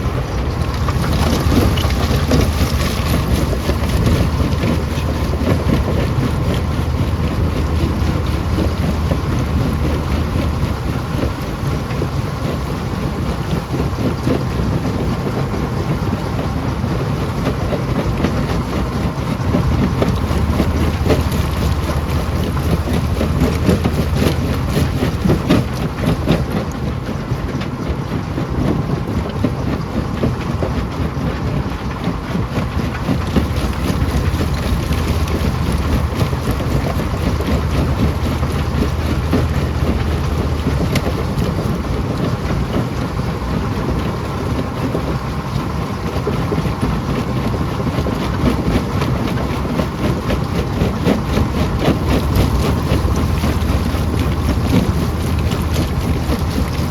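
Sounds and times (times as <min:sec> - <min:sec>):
rock crusher drone: 0:00.0 - 0:12.0, 0:19.4 - 0:26.8, 0:33.2 - 0:43.7, 0:49.7 - 0:56.9
stones rattling and knocking: 0:00.6 - 0:05.6.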